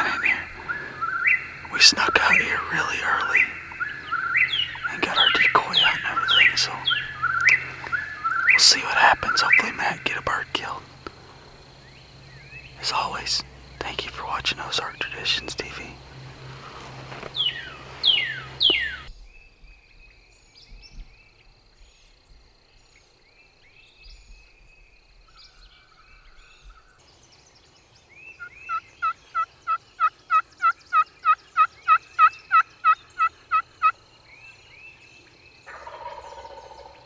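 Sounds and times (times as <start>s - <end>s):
turkey yelps: 0.0s - 11.6s, 12.8s - 19.1s, 28.7s - 34.0s, 35.7s - 37.0s
loud falling turkey calls: 0.0s - 19.1s, 28.3s - 34.9s, 35.7s - 37.0s
faint songbird chirps: 0.0s - 37.0s.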